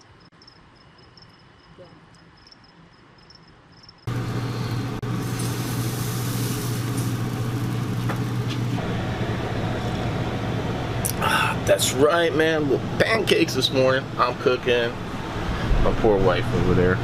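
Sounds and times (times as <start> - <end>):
faint insects chirping: 0.0 - 4.1
loud machine hum with rushing air: 4.1 - 17.0.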